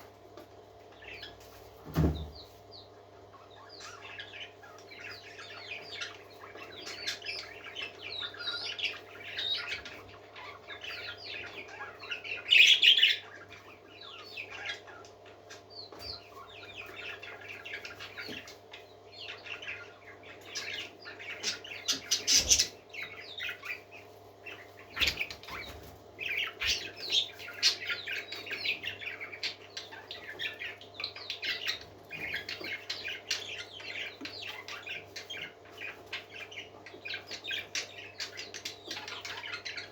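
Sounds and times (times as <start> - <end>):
parakeets chirping and warbling: 0.0 - 39.9.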